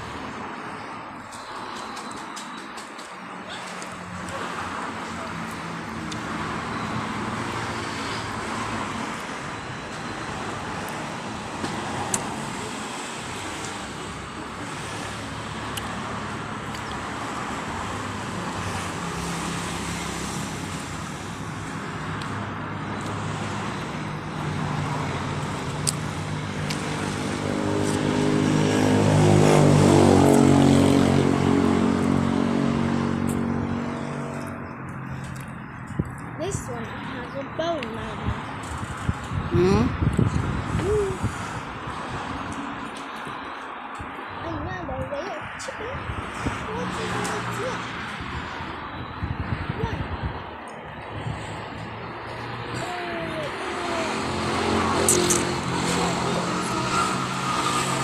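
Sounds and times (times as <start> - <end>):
road traffic passing: 0.0 - 58.0
vehicle engine passing close: 13.8 - 38.2, 46.0 - 58.0.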